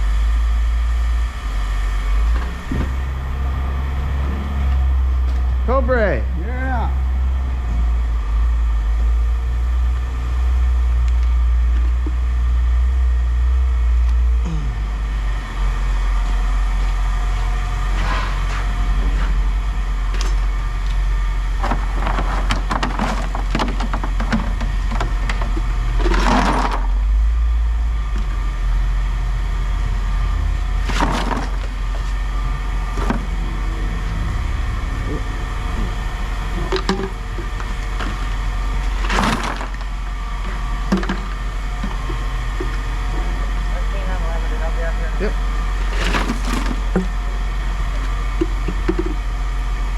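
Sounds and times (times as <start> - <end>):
vehicle engine idling: 0.0 - 49.9
scrap metal clattering: 30.8 - 42.2, 45.8 - 47.1.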